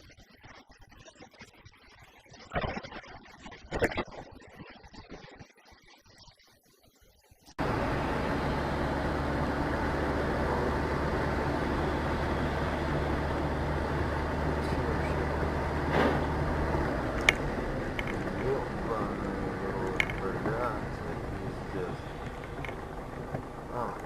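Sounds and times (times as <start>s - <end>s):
vehicle engine and road noise: 7.6s - 24.0s.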